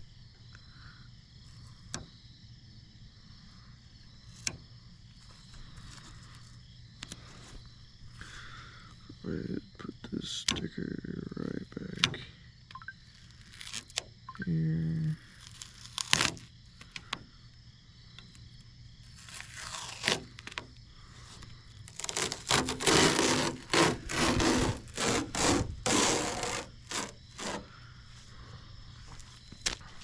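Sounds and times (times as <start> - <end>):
sticker scraping on boat hull: 15.6 - 16.5, 19.1 - 20.7, 21.8 - 27.7.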